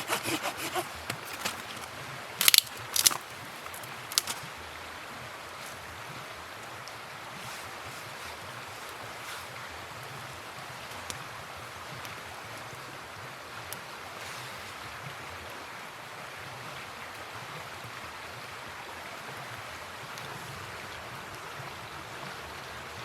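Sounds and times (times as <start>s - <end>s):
river water rushing: 0.0s - 11.8s.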